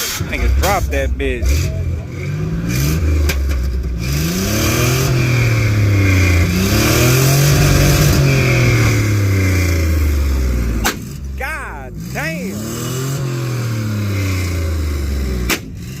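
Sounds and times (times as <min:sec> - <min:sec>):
engine backfire bang: 0:00.0 - 0:11.2
truck engine revving: 0:00.0 - 0:16.0.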